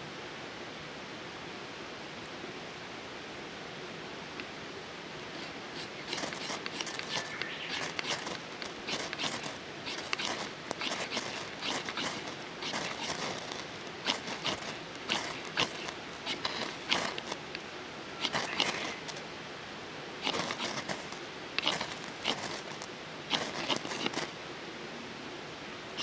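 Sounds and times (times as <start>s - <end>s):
twigs clicking and crackling: 5.4s - 19.2s, 20.2s - 24.3s.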